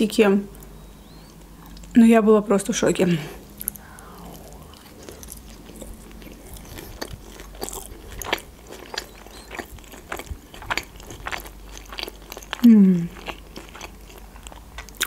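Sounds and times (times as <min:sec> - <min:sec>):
chewing mouth clicks and smacks: 0:03.6 - 0:12.6.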